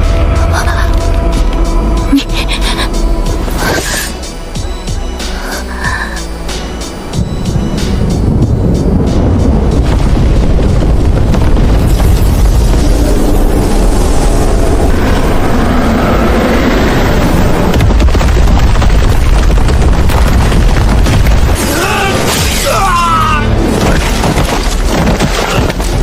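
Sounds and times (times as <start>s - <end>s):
cinematic booming rumble: 7.0s - 26.0s.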